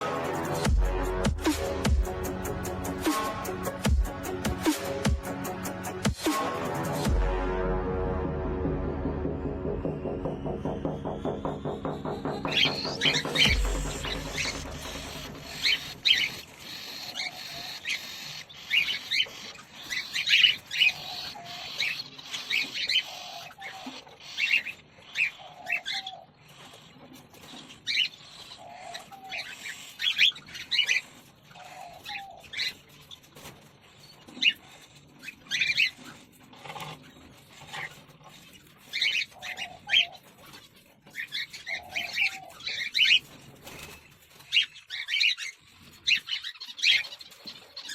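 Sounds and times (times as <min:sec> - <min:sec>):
cockatiels chirping: 0:12.4 - 0:47.9.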